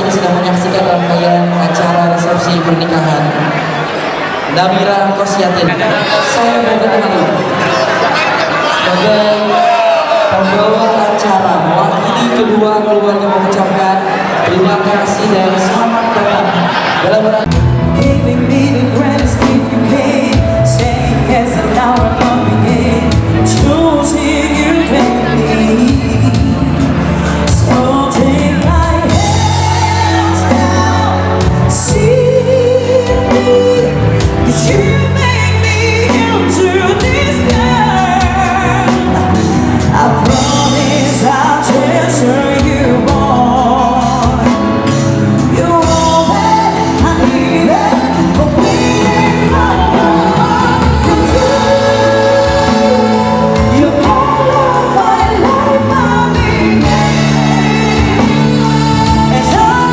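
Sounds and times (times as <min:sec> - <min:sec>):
person singing: 0:17.0 - 0:59.9
bass and drums music: 0:17.4 - 0:59.9.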